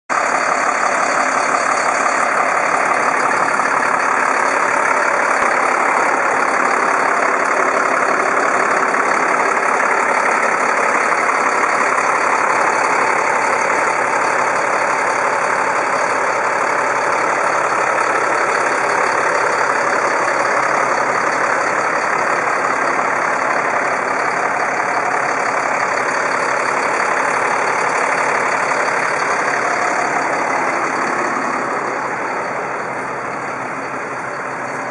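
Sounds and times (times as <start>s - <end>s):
truck engine idling: 0.1s - 34.9s.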